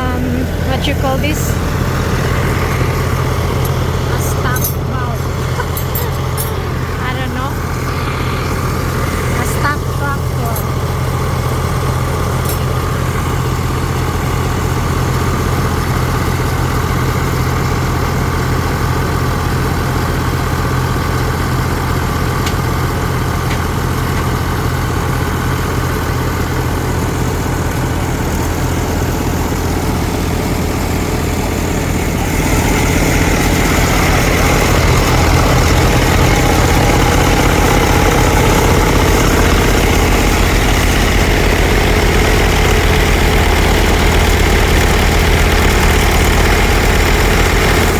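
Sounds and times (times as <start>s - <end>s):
diesel tractor engine idling: 0.0s - 47.9s.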